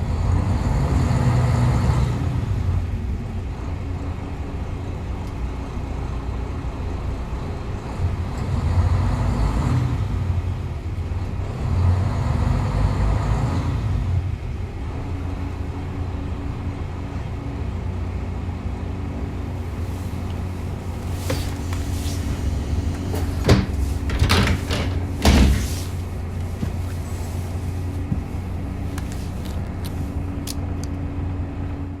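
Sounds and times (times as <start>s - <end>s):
diesel railcar engine rumble: 0.0s - 32.0s
sharp clicks and knocks: 22.9s - 26.8s.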